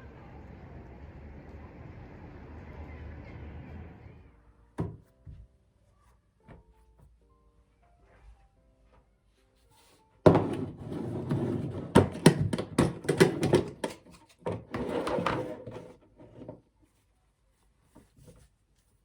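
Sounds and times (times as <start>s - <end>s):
rustling and scraping: 9.4s - 19.0s.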